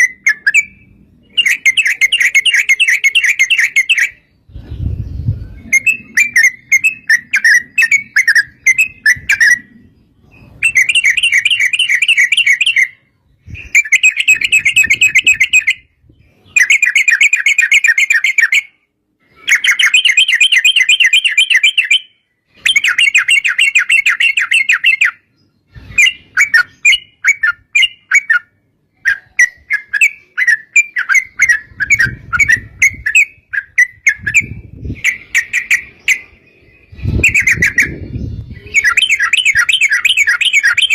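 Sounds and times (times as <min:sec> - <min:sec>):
bulbul singing rapid trills: 0:00.0 - 0:18.8, 0:19.4 - 0:40.9.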